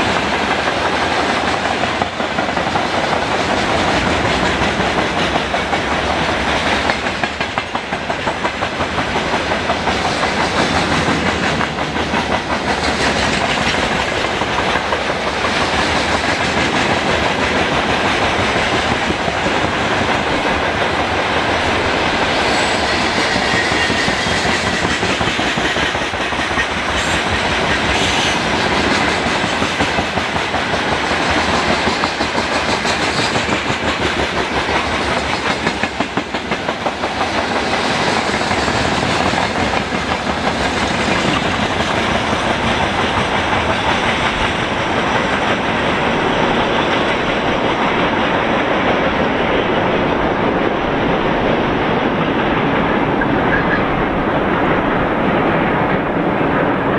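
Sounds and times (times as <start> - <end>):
train wheels clattering on rails: 0.0 - 56.9.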